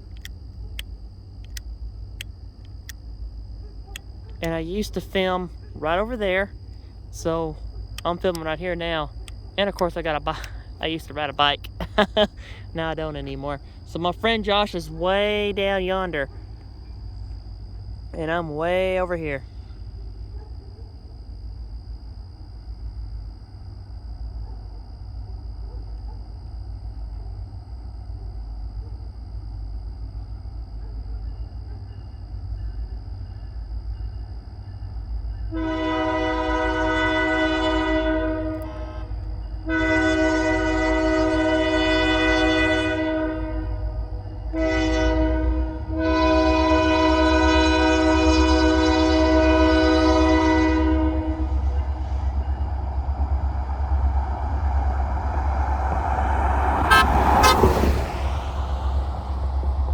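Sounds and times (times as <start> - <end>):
locomotive low rumble: 0.0 - 59.9
train air horn blasts: 35.5 - 53.9, 54.7 - 59.7
train rushing past: 40.2 - 59.9.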